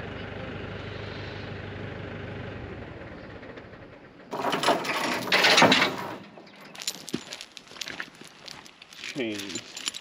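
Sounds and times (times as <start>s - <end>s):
engine idling: 0.0s - 6.3s
chain rattling and scraping: 4.3s - 10.0s.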